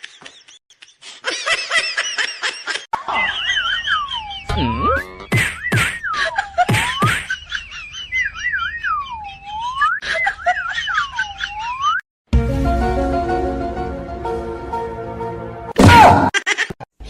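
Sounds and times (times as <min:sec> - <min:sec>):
swooping whistle-like tone: 0:08.3 - 0:10.0.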